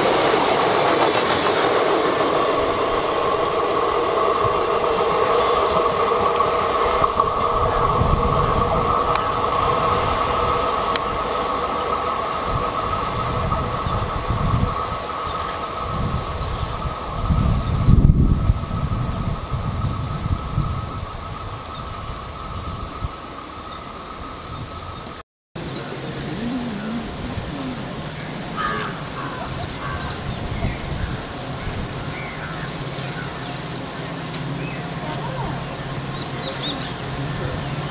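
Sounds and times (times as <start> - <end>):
steady background noise: 0.0 - 37.9
train wheels rumbling: 0.0 - 37.9
train whine: 0.0 - 37.9
bird harsh calls: 25.7 - 31.2.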